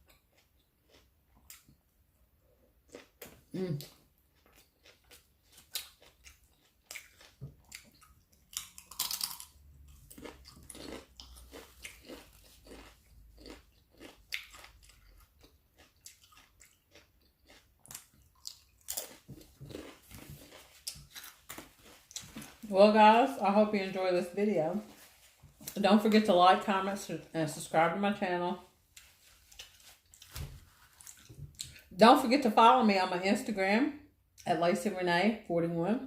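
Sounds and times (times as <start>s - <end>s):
chewing and biting sandwich: 0.0s - 1.8s, 2.6s - 22.6s, 28.9s - 31.9s.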